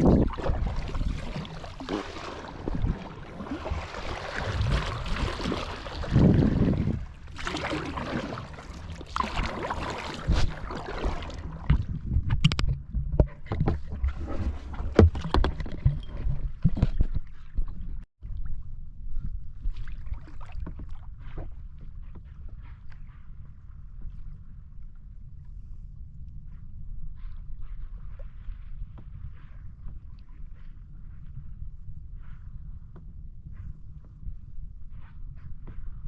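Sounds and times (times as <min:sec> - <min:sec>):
water rushing and splashing: 0:00.0 - 0:11.8
wind rumble on microphone: 0:00.0 - 0:36.0.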